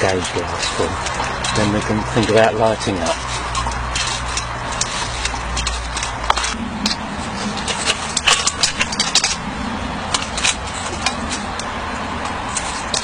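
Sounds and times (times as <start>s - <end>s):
small metal parts clinking: 0.0s - 9.4s
steady low hum: 0.0s - 13.0s.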